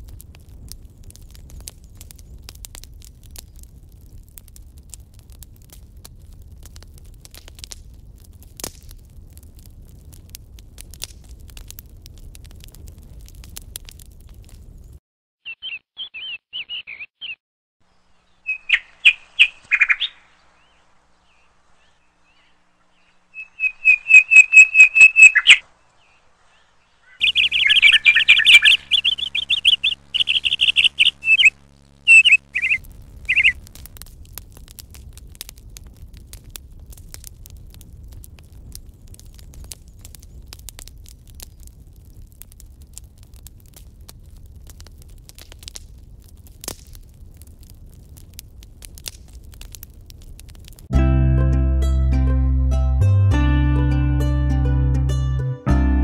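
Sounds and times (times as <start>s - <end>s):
songbird chirps and trills: 15.4s - 33.6s.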